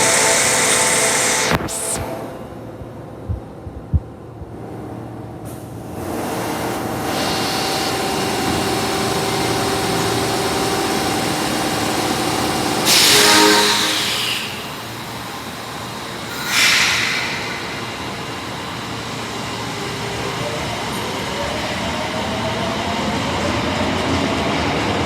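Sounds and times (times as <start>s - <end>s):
subway train running hum: 0.0s - 25.0s
train air horn blast: 12.9s - 15.5s, 16.3s - 18.4s.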